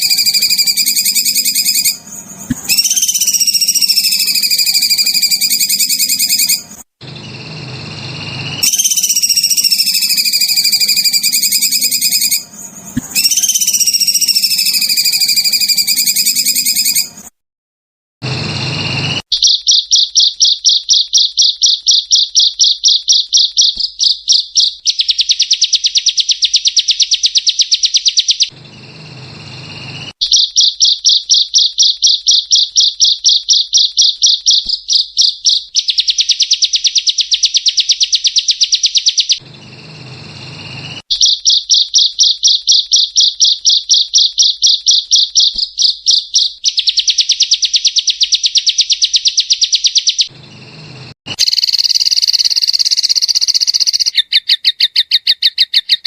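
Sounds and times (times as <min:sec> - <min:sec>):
buzzy bird trill: 0:00.0 - 0:17.3, 0:18.3 - 0:56.0
songbird chirping: 0:00.0 - 0:17.3, 0:19.3 - 0:56.0.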